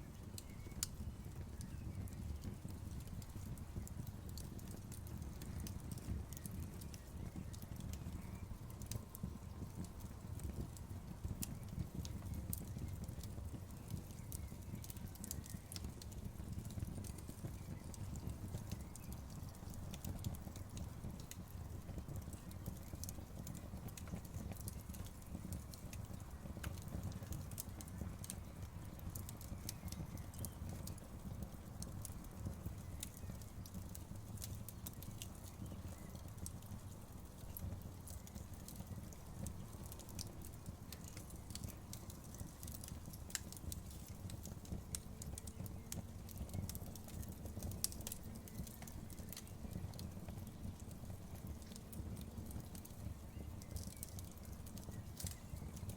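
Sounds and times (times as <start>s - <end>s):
campfire burning: 0.0s - 55.9s
wood crackling and popping: 0.0s - 55.9s.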